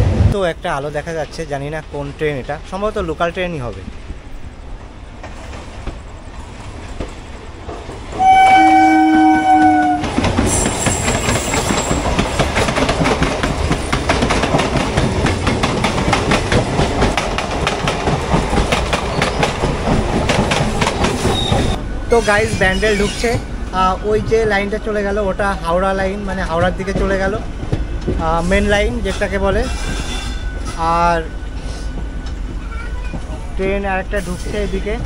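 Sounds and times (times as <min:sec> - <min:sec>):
passing train rush and clickety-clack: 0:00.0 - 0:35.0
train horn: 0:08.2 - 0:10.2.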